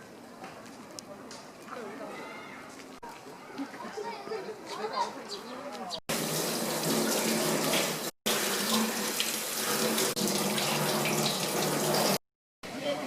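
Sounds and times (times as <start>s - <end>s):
running water rushing: 6.1s - 12.2s.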